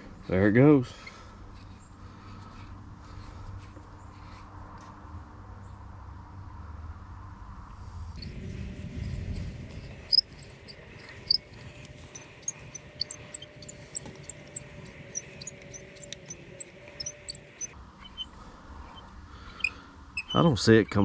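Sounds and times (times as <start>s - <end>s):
allen wrench clicking: 9.0s - 17.7s.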